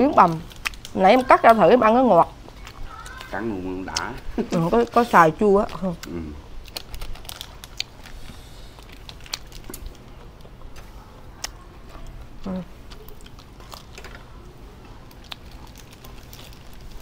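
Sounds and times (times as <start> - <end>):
crisp clicks and mouth sounds: 0.2 - 1.8, 2.4 - 4.4, 5.6 - 17.0
person biting and chewing food: 0.4 - 1.0, 5.8 - 11.6.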